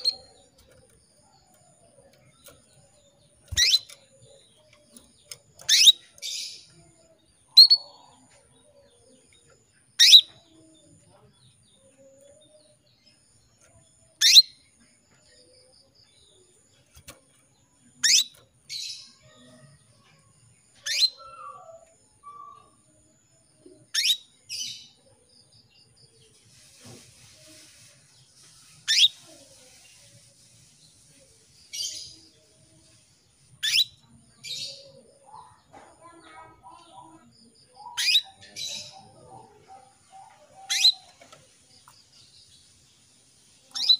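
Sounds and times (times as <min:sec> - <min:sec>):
canary calling: 0:00.0 - 0:00.7, 0:03.4 - 0:06.8, 0:10.0 - 0:10.4, 0:37.8 - 0:41.3.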